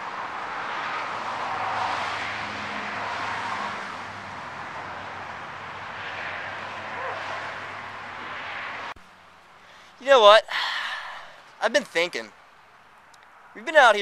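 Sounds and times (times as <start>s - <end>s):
outdoor background hiss: 7.7s - 14.0s.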